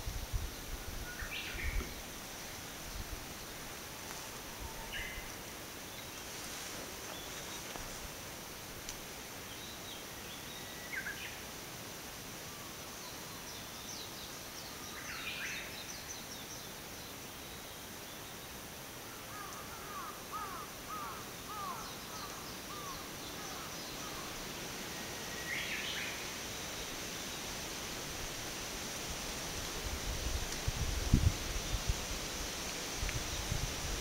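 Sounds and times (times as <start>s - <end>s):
wind hissing in trees: 0.0s - 34.0s
birds calling: 19.3s - 24.5s.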